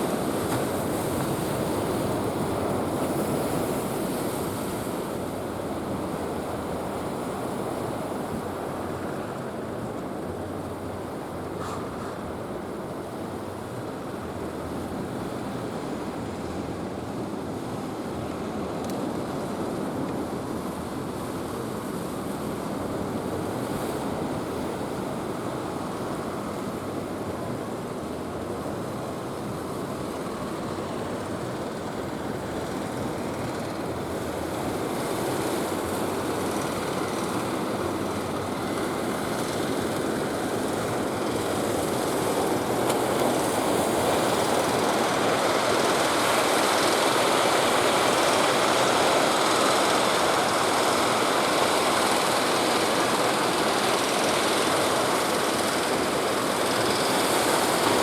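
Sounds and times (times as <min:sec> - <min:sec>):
surf washing: 0:20.4 - 0:58.0.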